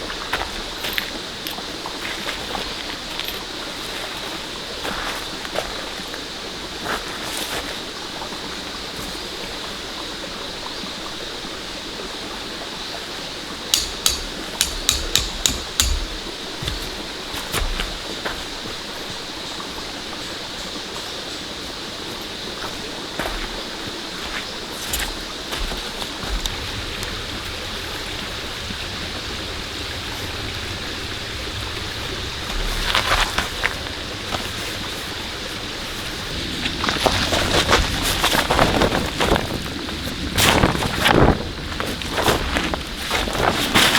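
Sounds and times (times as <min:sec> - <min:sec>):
rain hiss: 0:00.0 - 0:43.9
hammer blows: 0:13.7 - 0:16.8.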